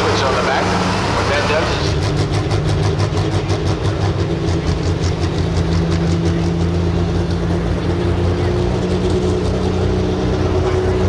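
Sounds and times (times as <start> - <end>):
diesel truck engine under load: 0.0 - 11.0.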